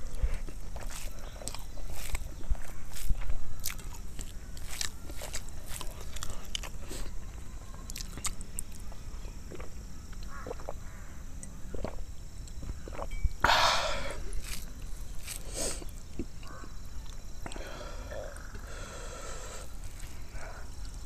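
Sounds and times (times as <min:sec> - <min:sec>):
crunch or slurp: 0:00.0 - 0:07.2, 0:09.5 - 0:10.8, 0:12.9 - 0:16.3
person chewing food: 0:00.0 - 0:08.9, 0:09.5 - 0:10.9, 0:14.2 - 0:17.7.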